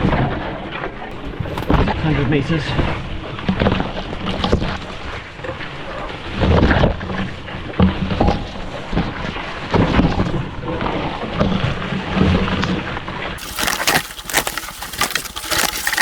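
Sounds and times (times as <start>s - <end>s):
brushing through undergrowth: 13.4s - 16.0s
trudging footsteps: 13.4s - 16.0s.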